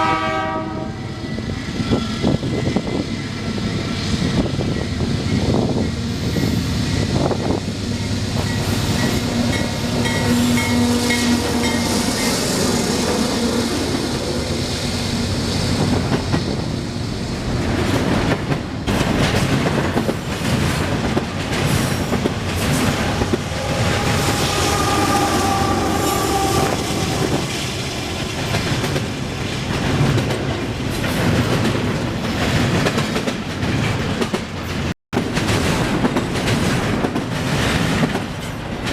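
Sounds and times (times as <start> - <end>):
train wheels clattering: 17.6 - 38.9.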